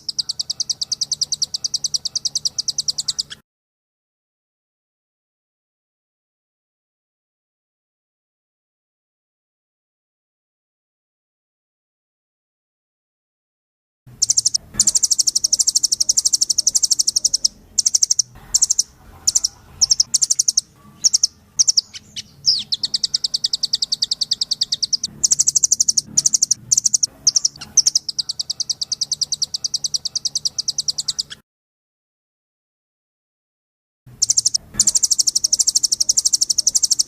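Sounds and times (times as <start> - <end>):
songbird rattling trills: 0.0 - 3.4, 14.2 - 31.4, 34.2 - 37.0.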